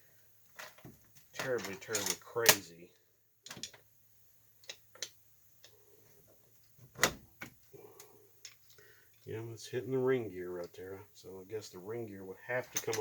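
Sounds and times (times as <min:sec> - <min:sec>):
sharp metal clicks and knocks: 0:00.6 - 0:02.6, 0:03.4 - 0:03.8, 0:12.7 - 0:13.0.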